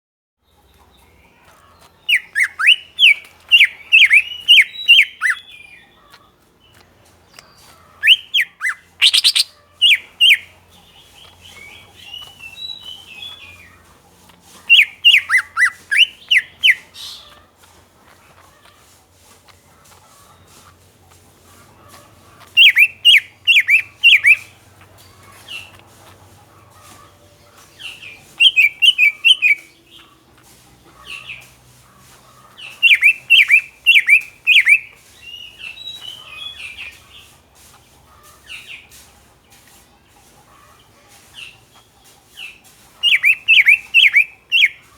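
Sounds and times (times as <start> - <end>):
bird whistled song: 2.0 - 6.0, 6.7 - 10.5, 11.2 - 13.7, 14.7 - 17.3, 22.4 - 24.5, 27.8 - 30.1, 32.6 - 36.9, 43.0 - 44.9
bird chattering calls: 2.0 - 13.9, 14.6 - 18.6, 20.1 - 30.2, 30.9 - 37.2, 42.4 - 44.9.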